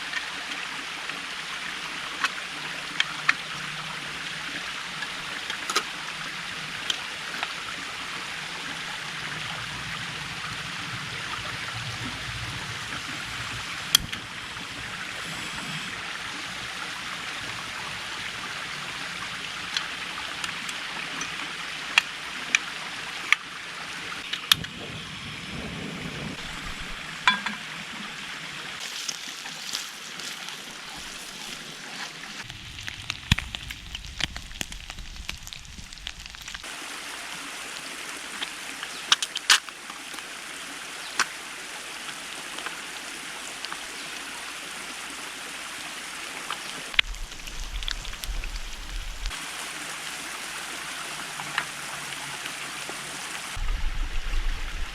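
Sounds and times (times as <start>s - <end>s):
creek water running: 0.0s - 54.9s
sharp clicks and ticks: 32.4s - 36.7s.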